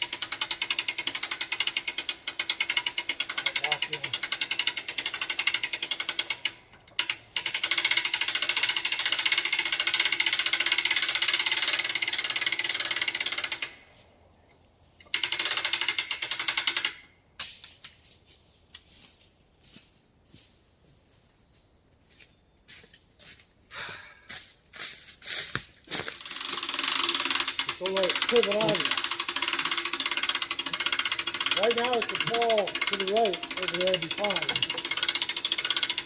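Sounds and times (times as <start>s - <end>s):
electric winch rattling: 0.0s - 13.9s, 15.1s - 17.2s, 26.1s - 36.0s.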